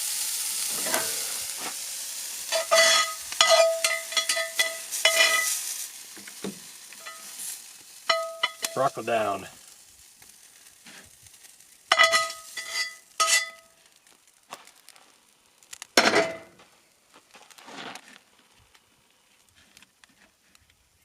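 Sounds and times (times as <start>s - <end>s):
faint sizzling in pan: 0.0s - 21.0s
metal utensils clinking on cookware: 0.7s - 1.4s, 2.5s - 5.6s, 7.0s - 7.4s, 8.1s - 9.0s, 11.9s - 13.7s.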